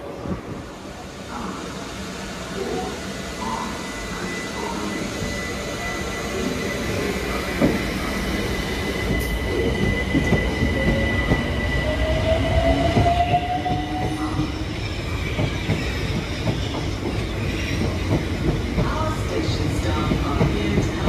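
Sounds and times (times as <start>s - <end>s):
train rumble: 0.0s - 21.0s
train whine rising in pitch: 3.4s - 14.8s.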